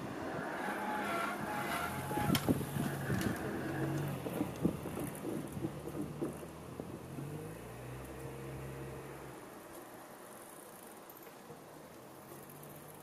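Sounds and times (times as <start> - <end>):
train wheels clicking on rail joints: 0.0 - 8.5.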